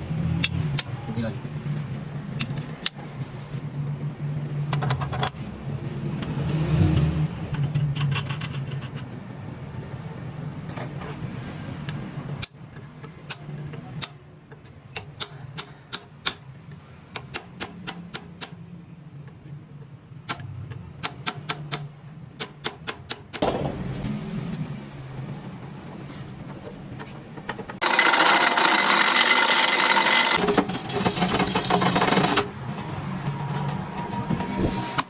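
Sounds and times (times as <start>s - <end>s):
machine humming: 27.8s - 35.0s.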